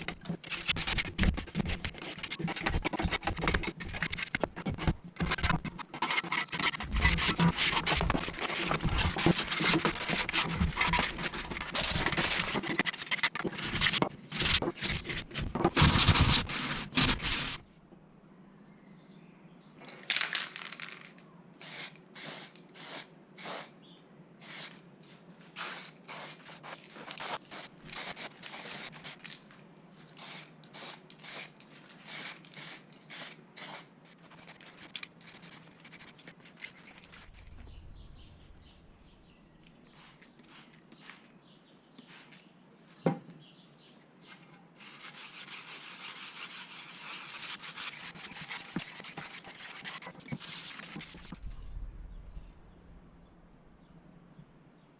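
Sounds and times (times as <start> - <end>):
steady hiss: 19.8 - 43.0
hand rubbing strokes on surface: 44.3 - 51.6.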